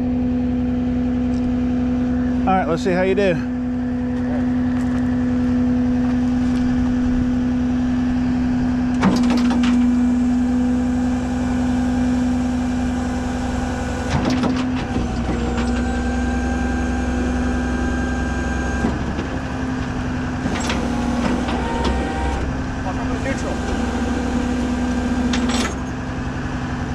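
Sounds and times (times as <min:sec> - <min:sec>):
tow truck hydraulic pump drone: 0:00.0 - 0:26.9
metal clanks: 0:25.2 - 0:26.0.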